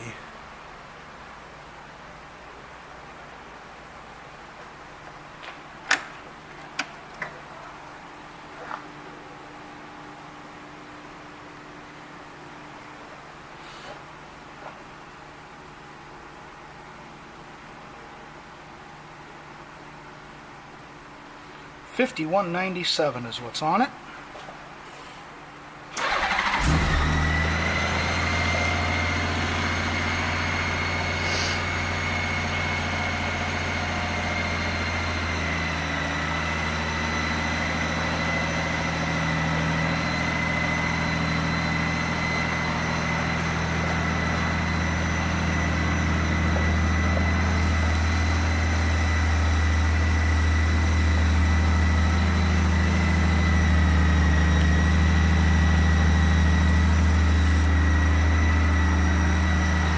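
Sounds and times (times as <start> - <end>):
faint high whine: 25.9 - 59.9
motorcycle engine starting and idling: 25.9 - 59.9.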